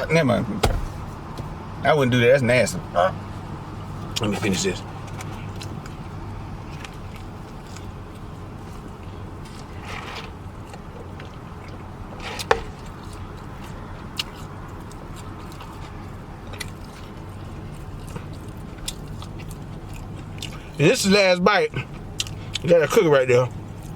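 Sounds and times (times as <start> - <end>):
person chewing food: 5.0 - 20.8, 21.8 - 22.6.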